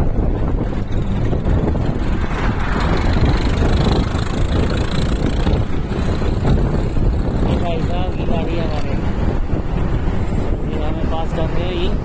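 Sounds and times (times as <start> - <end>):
vehicle road noise rumble: 0.0 - 12.0
wind buffeting microphone: 0.0 - 12.0.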